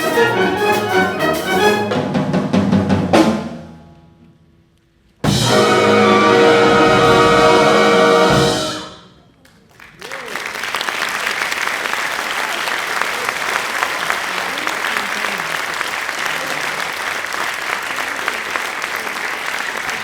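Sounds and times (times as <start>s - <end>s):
wind band playing: 0.0s - 3.6s, 5.2s - 9.3s.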